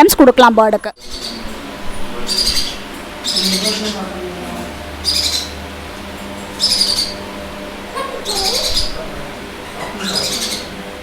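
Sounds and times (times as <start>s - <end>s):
bird rasping chirps: 1.0s - 1.5s, 2.2s - 4.0s, 5.0s - 5.7s, 6.5s - 7.4s, 8.0s - 9.1s, 10.0s - 10.8s.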